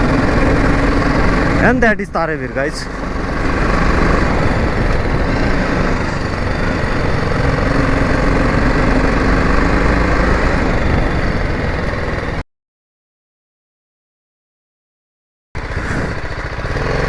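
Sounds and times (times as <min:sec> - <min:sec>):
motorcycle engine running: 0:00.0 - 0:12.4, 0:15.6 - 0:17.0.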